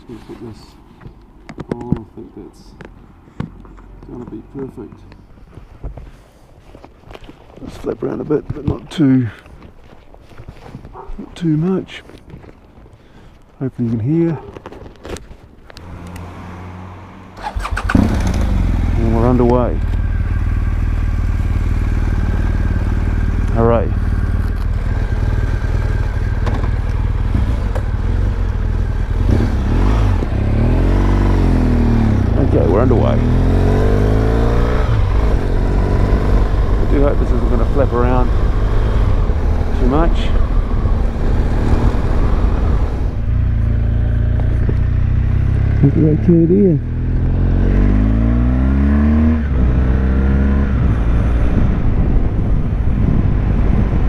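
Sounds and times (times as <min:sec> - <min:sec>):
wind and road noise: 0:00.0 - 0:54.0
motorcycle engine revving: 0:15.8 - 0:54.0.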